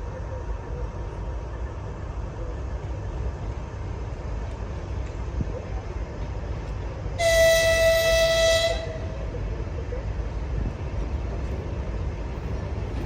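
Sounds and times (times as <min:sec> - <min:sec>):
diesel locomotive rumbling: 0:00.0 - 0:13.0
locomotive horn blast: 0:07.2 - 0:09.2.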